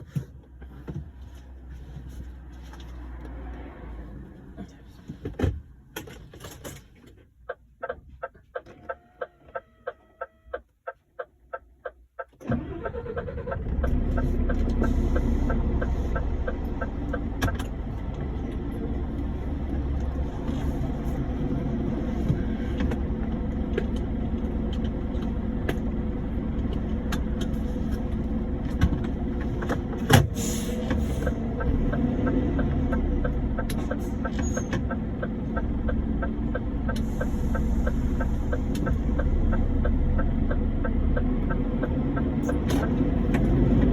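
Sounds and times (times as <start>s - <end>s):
diesel engine starting and running: 11.5s - 43.9s.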